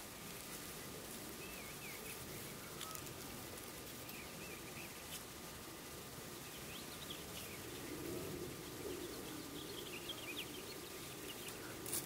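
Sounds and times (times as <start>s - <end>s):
low steady murmur: 0.0s - 12.0s
soft bird chirps: 6.4s - 11.8s.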